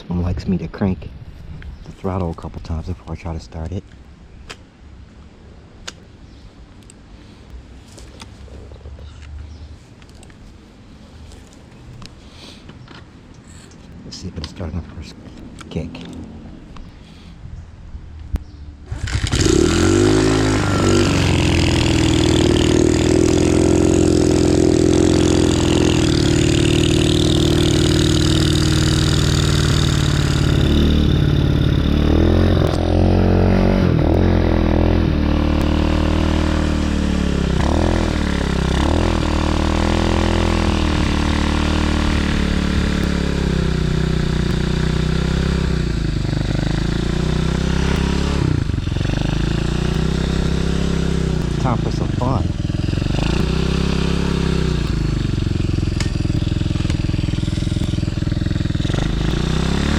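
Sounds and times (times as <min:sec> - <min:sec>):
dirt bike engine revving: 0:18.8 - 0:59.9.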